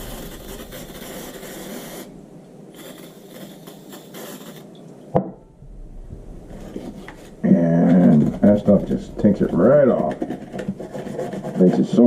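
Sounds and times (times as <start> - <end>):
aerosol spray hissing: 0.0 - 4.8.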